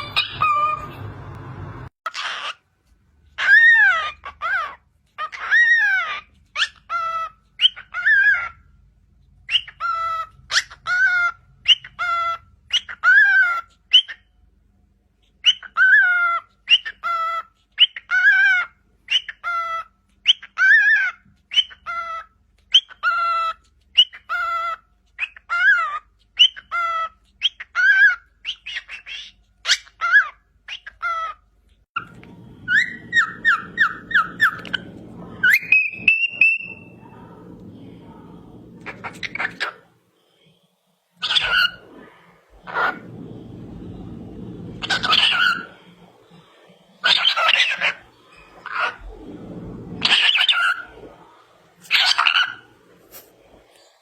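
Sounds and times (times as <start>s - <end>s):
bird calling: 32.0s - 39.9s, 41.2s - 52.9s.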